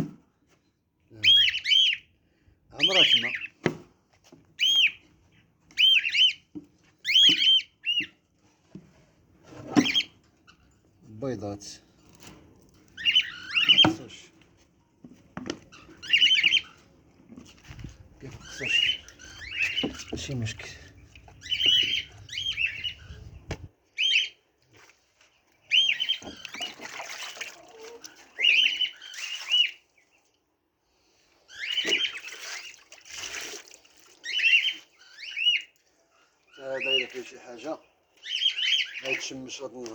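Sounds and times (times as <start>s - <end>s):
bird chirping: 1.2s - 2.1s, 2.8s - 3.6s, 4.6s - 8.2s, 9.6s - 10.8s, 12.7s - 14.3s, 15.6s - 16.9s, 17.6s - 24.4s, 25.6s - 26.8s, 27.8s - 30.2s, 34.2s - 35.7s, 36.5s - 39.7s
rustling noise: 16.8s - 23.7s.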